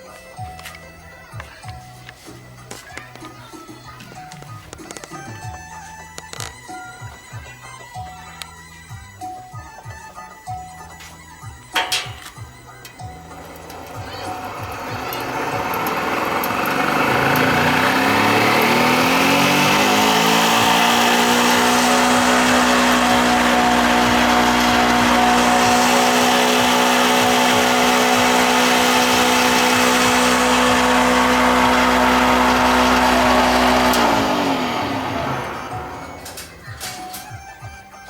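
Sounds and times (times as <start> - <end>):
electric motor whining: 11.5 - 37.3.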